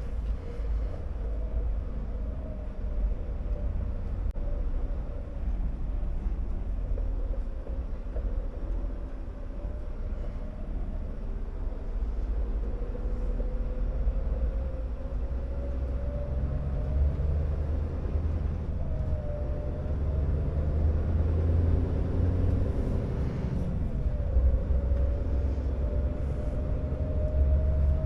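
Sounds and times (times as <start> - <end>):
diesel truck engine rumbling: 0.0 - 28.0.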